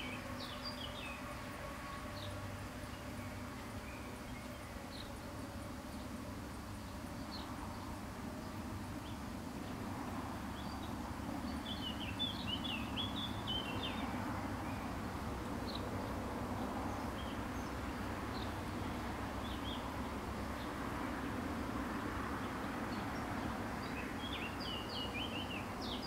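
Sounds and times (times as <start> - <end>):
small birds twittering: 0.0 - 1.4, 10.5 - 20.8, 22.4 - 26.0.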